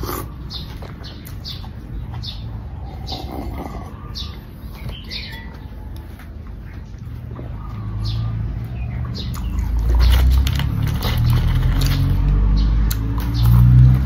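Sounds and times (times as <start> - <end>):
soup sipping: 0.0 - 0.4
chewing and mouth clicks: 9.2 - 13.7.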